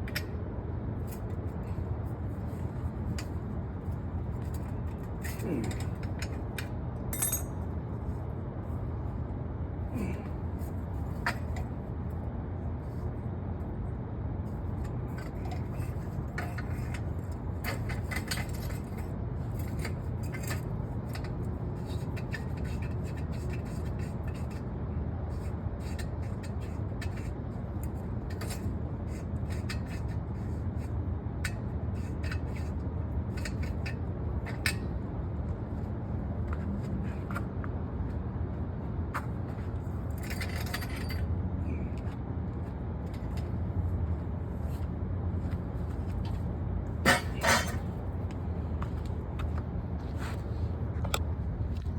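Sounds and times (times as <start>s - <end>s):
light clicks and scrapes: 36.4s - 51.9s.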